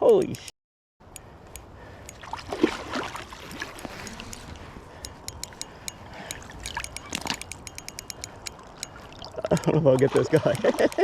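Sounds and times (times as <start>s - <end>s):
fishing reel clicking: 4.0s - 11.0s.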